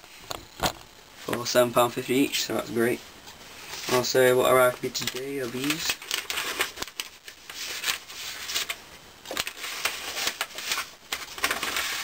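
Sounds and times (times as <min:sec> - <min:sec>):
paper tickets rustling and crinkling: 0:03.6 - 0:12.0.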